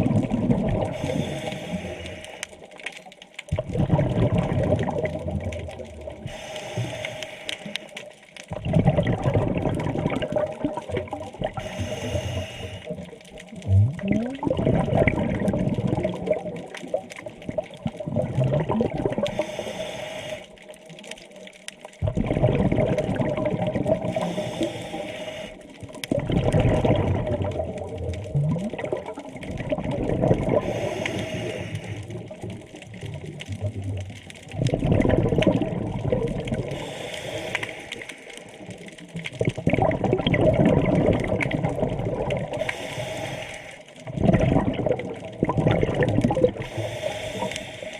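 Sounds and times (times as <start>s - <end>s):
exhaled bubbles rushing underwater: 0.0s - 19.8s, 20.4s - 47.9s
diver inhaling through regulator: 0.9s - 2.6s, 6.3s - 7.9s, 11.5s - 13.1s, 19.2s - 20.6s, 24.0s - 25.7s, 30.5s - 32.3s, 36.6s - 38.6s, 42.5s - 44.0s, 46.6s - 47.9s.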